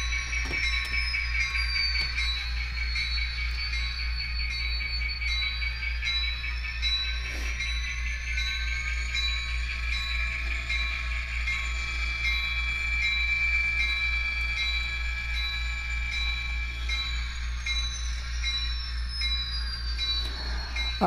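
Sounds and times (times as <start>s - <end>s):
light track clicks: 0.0s - 3.8s
model train motor hum and whine: 0.0s - 21.0s.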